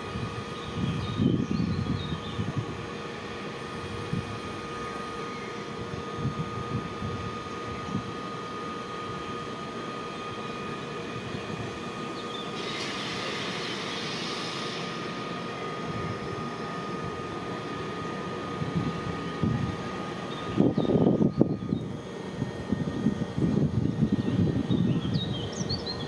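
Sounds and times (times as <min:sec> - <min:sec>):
train rumbling with whine: 0:00.0 - 0:26.0
hiss: 0:12.6 - 0:15.6.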